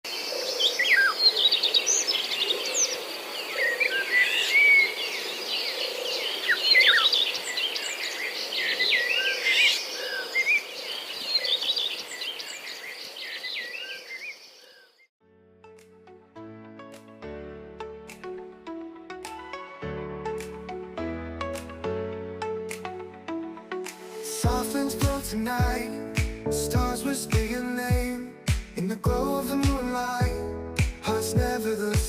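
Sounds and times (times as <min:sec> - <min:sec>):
songbirds chirping in chorus: 0:00.1 - 0:15.1.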